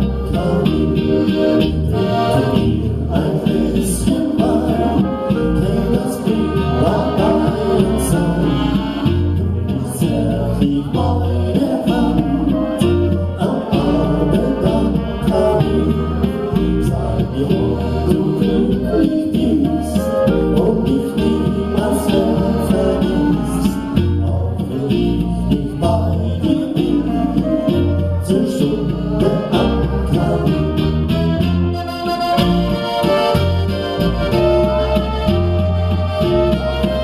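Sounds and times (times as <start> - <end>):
person singing: 0.0 - 31.0
bass line: 0.0 - 37.0
live band music: 0.0 - 37.0.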